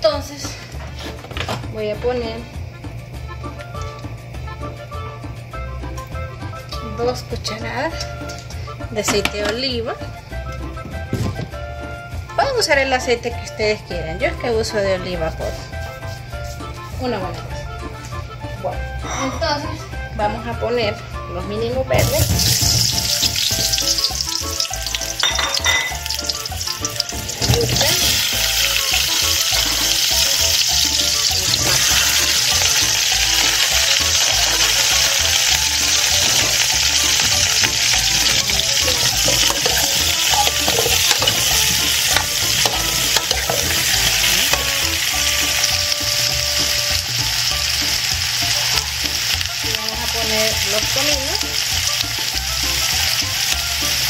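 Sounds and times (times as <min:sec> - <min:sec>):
food sizzling in oil: 0:21.9 - 0:54.0
spoon stirring: 0:22.6 - 0:45.9
utensil knocking against pot: 0:37.3 - 0:43.9.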